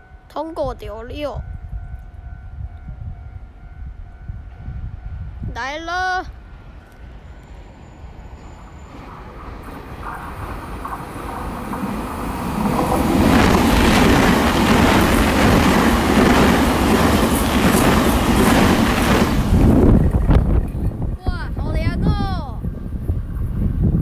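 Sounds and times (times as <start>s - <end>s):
train passing at speed: 1.0s - 24.0s
wheels clacking over rail joints: 8.9s - 21.2s.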